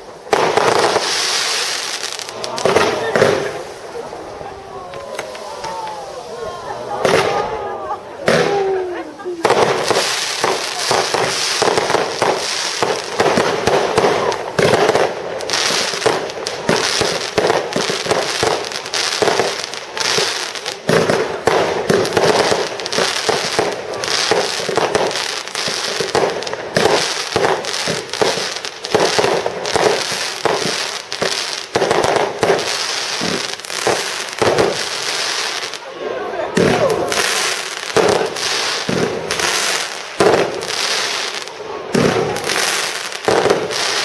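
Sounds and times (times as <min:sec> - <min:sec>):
fireworks bangs and crackling: 0:00.0 - 0:44.0.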